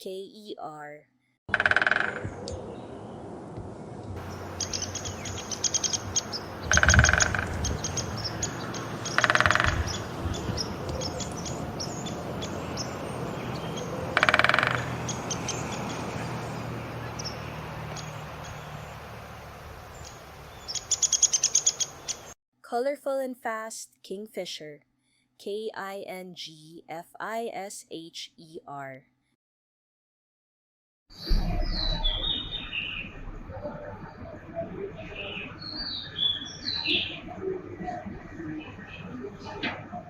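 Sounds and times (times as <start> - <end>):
woodpecker drumming: 1.5 - 3.0, 4.1 - 22.3
small birds chirping: 4.0 - 22.4, 31.2 - 39.6.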